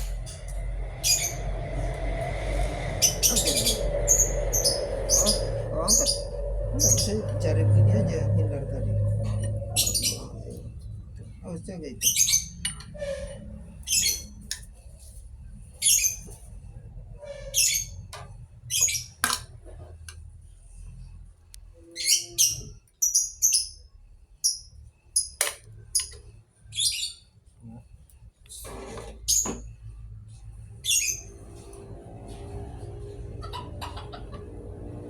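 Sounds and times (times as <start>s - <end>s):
bird chirping: 0.0s - 12.8s
low steady hum: 0.0s - 17.2s.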